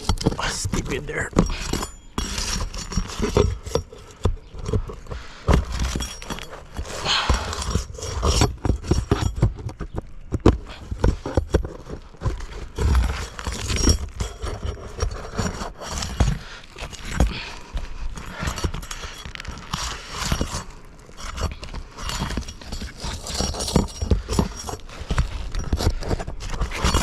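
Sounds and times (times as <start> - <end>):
pry bar knocking and scraping: 0.0 - 17.5.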